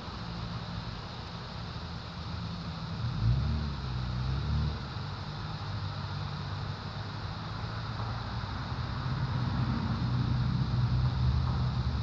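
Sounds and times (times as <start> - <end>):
car exhaust rumble: 2.5 - 12.0.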